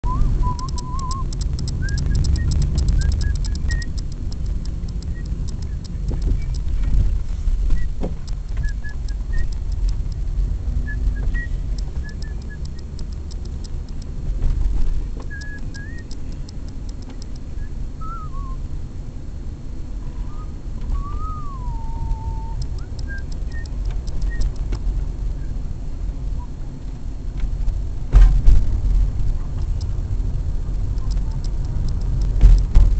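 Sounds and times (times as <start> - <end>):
bird chirps: 0.0 - 6.6, 8.5 - 9.8, 10.8 - 13.4, 15.3 - 18.6, 20.2 - 24.6
fast high ticking: 0.0 - 17.7, 21.6 - 25.5, 28.6 - 32.9
low rumble: 0.0 - 18.6.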